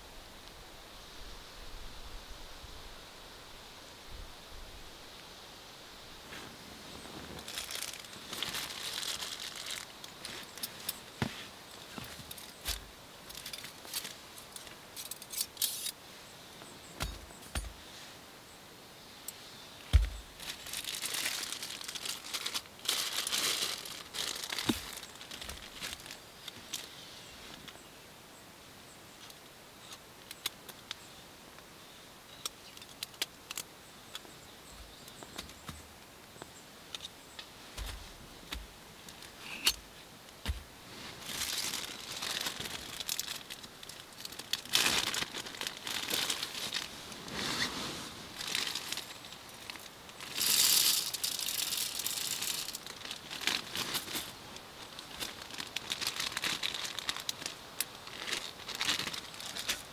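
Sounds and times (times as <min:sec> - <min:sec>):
plastic packaging crinkling: 0:07.0 - 0:11.2, 0:19.9 - 0:26.2, 0:41.2 - 0:59.9.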